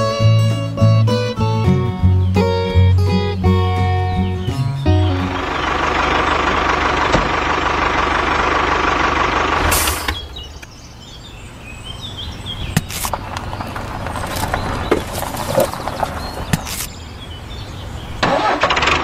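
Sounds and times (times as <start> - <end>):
sharp clicks: 12.8 - 16.9.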